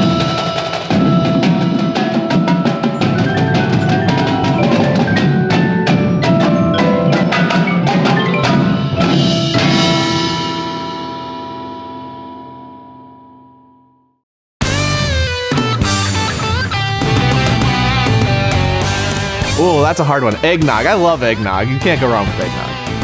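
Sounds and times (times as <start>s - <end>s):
drums and mallet percussion music: 0.0s - 11.7s, 14.6s - 23.0s
ringing struck chord: 0.0s - 13.8s.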